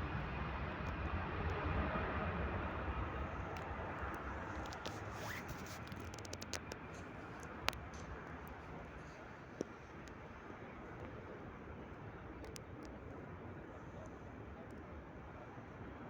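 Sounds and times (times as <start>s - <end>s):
sharp clicks and scratches: 3.5s - 8.6s.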